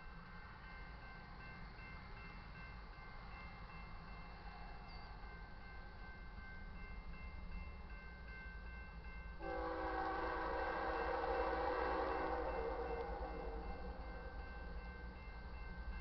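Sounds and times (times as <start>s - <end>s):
freight train rumble: 0.0s - 16.0s
locomotive air horn chord: 9.4s - 14.4s.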